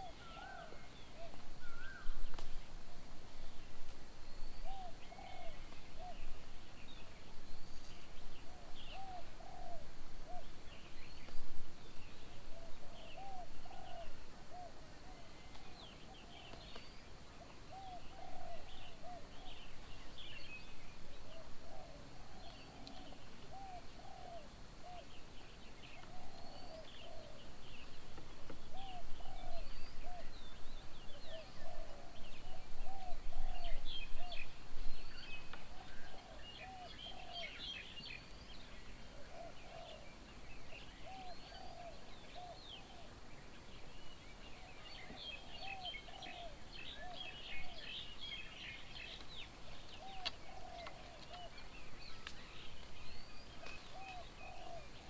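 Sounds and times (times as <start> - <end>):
birds chirping and twittering: 28.6 - 55.0.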